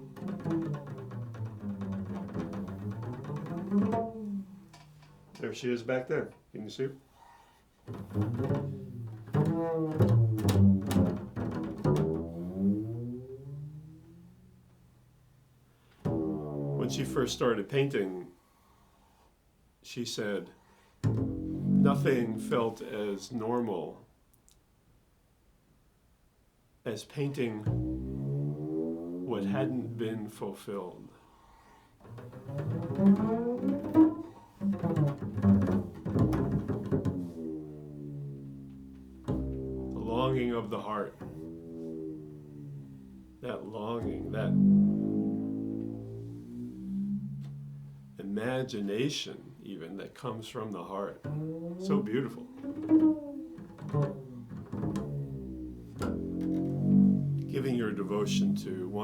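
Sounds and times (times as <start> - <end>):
low ringing plucked string notes: 0.0 - 5.4, 7.9 - 14.8, 16.1 - 17.4, 21.0 - 22.7, 27.6 - 30.0, 32.1 - 48.4, 51.2 - 59.0
low-pitched instrument solo: 0.0 - 5.8, 7.9 - 15.0, 16.0 - 17.7, 21.0 - 23.0, 27.3 - 30.2, 32.0 - 59.0.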